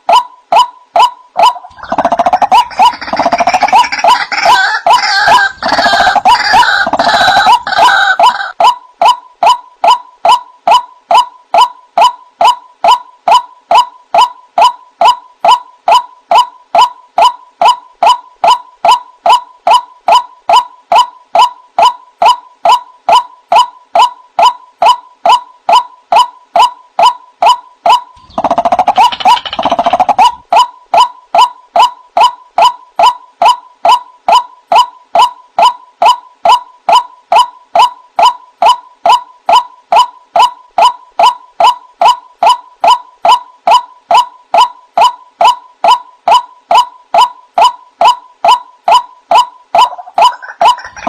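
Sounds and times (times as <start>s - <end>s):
waterhen calling: 1.4s - 8.6s, 49.8s - 51.0s.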